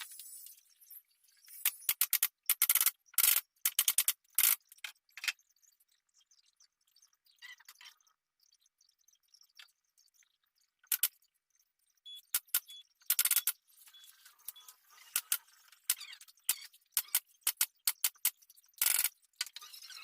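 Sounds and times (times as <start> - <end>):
sharp clicks and metallic clinks: 1.6 - 5.4, 10.8 - 11.2, 12.2 - 13.6, 14.5 - 19.9.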